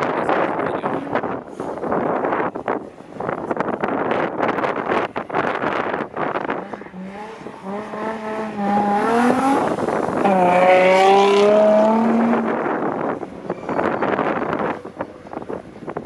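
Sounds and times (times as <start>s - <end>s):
wind buffeting microphone: 0.0s - 16.0s
rally car engine revving: 3.3s - 15.6s.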